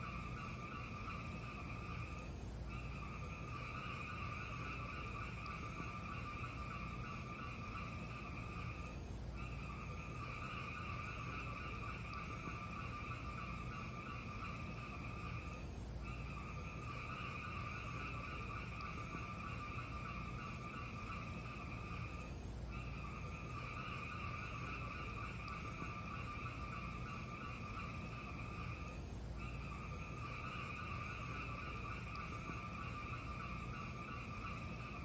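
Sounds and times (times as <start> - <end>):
fire crackling: 0.1 - 35.0.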